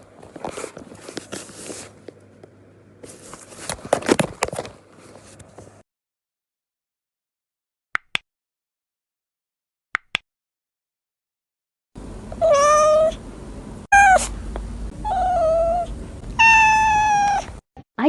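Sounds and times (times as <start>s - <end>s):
low background hum: 0.0s - 5.8s, 12.0s - 17.6s
cat meowing: 12.4s - 13.2s, 13.9s - 14.3s, 15.0s - 17.6s.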